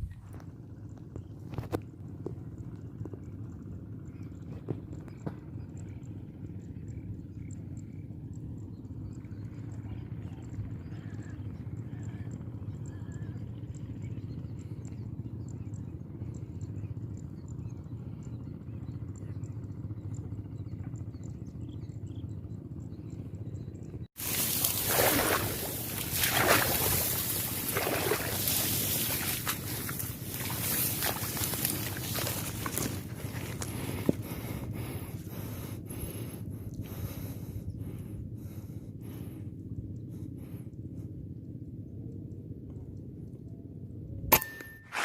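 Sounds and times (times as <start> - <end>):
faint bird calls: 0.0 - 41.7
low hum: 0.0 - 45.0
insects chirping: 24.2 - 39.0.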